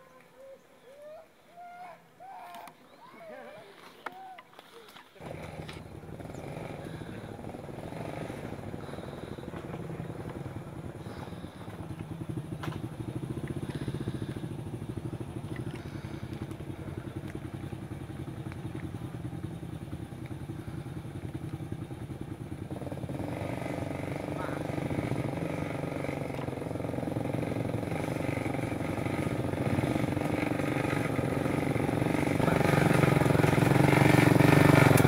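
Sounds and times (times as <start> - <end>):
motorcycle engine running: 5.2 - 35.0.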